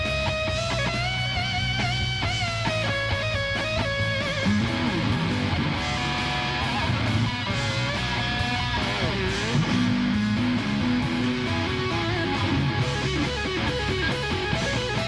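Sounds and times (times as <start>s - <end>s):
bass: 0.0s - 15.0s
drums: 0.0s - 15.0s
electric guitar solo: 0.0s - 15.0s.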